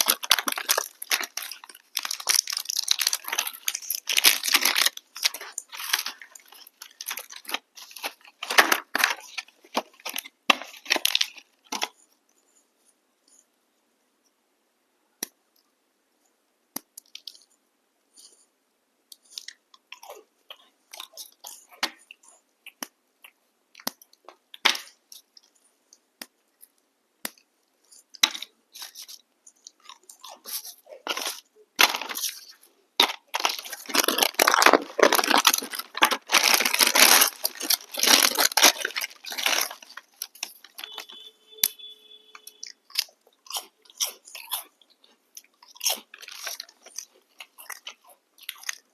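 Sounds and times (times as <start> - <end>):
biscuits being crunched: 0.0 - 12.0, 27.2 - 41.3, 42.4 - 48.9
brief tone: 40.8 - 42.6.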